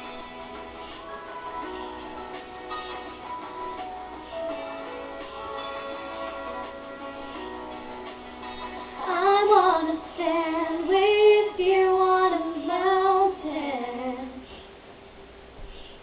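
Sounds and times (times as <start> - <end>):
pop backing track: 0.0 - 14.0
young woman singing: 9.0 - 14.4.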